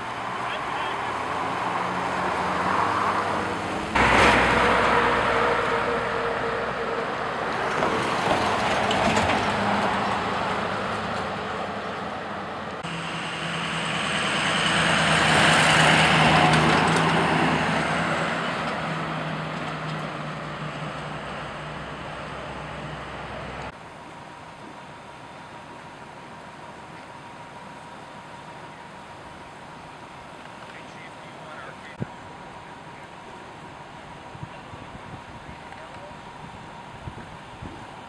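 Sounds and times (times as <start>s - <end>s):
vehicle passing: 0.0s - 23.7s
heavy vehicles running: 0.0s - 38.0s.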